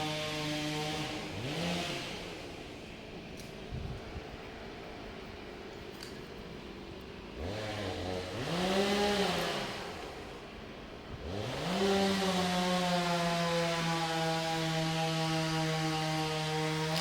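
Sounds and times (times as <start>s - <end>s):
chainsaw engine revving: 0.0s - 3.0s, 7.3s - 17.0s.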